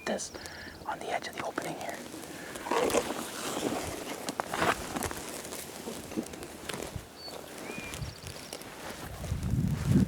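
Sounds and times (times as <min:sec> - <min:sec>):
footsteps through woods: 0:02.0 - 0:10.0
faint bird chirps: 0:07.2 - 0:08.7.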